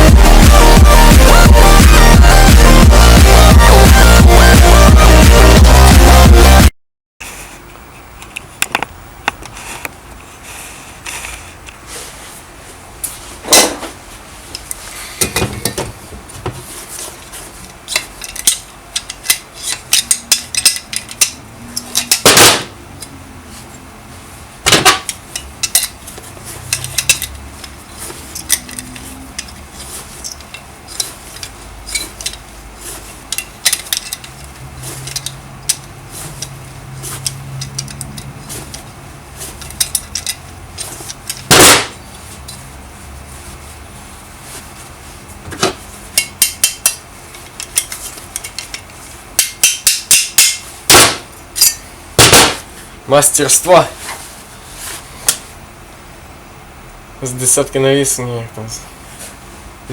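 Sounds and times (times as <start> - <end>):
metal tools clinking on engine parts: 26.6 - 32.5, 33.3 - 38.9, 39.5 - 41.5.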